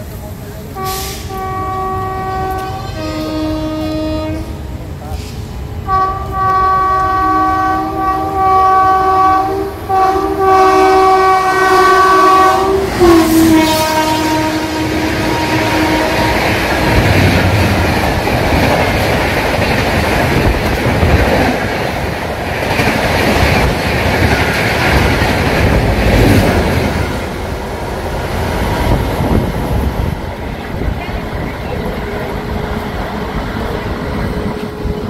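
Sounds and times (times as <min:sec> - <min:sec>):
train wheels rumbling on rails: 0:00.0 - 0:35.0
locomotive horn blasts: 0:00.8 - 0:04.7, 0:05.8 - 0:17.0.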